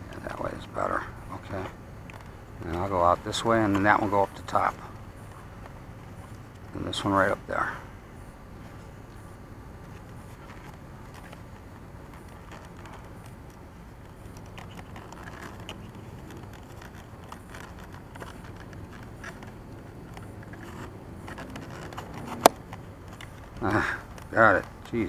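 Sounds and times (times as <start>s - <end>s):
low background rumble: 0.0s - 25.0s
hands clicking plastic parts: 10.4s - 25.0s.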